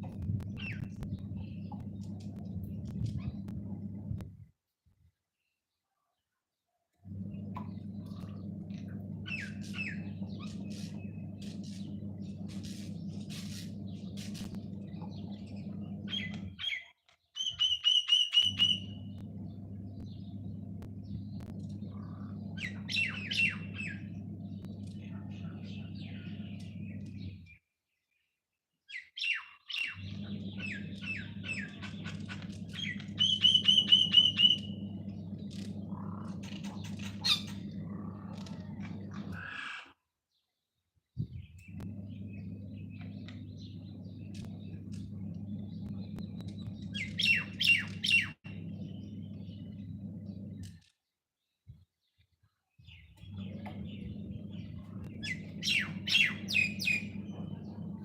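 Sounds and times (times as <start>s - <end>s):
small birds chirping: 0.0s - 4.2s, 5.4s - 58.0s
steady low hum: 0.0s - 4.6s, 7.0s - 16.7s, 18.4s - 27.6s, 30.0s - 39.6s, 41.2s - 50.8s, 53.0s - 58.0s.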